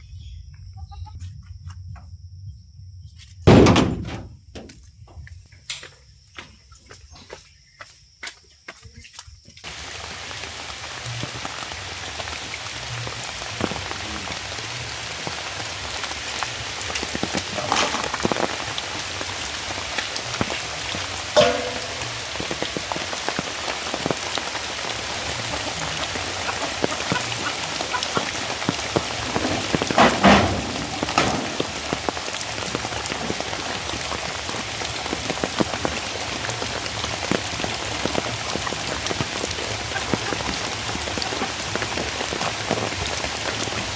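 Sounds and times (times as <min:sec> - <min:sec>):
raindrops splashing: 0:09.6 - 0:43.9
steady rain patter: 0:09.6 - 0:43.9.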